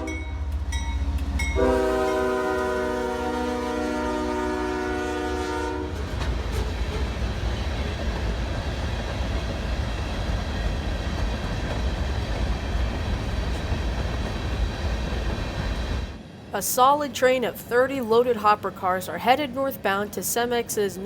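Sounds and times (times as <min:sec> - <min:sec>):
locomotive horn: 0:00.0 - 0:00.6, 0:01.4 - 0:06.2
freight train rumbling past: 0:00.0 - 0:21.0
wheels clattering on rails: 0:05.9 - 0:20.0.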